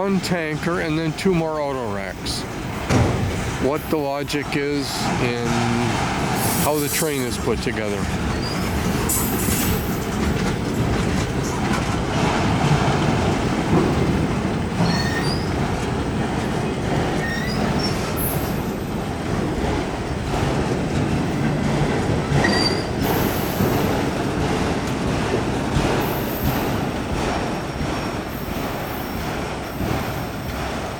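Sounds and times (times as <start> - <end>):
freight train rumbling past: 0.0 - 30.9
wheels clacking over rail joints: 0.0 - 30.9
train wheel squeals: 8.3 - 11.6, 14.8 - 15.6, 17.1 - 19.0, 22.3 - 24.1, 26.0 - 30.9.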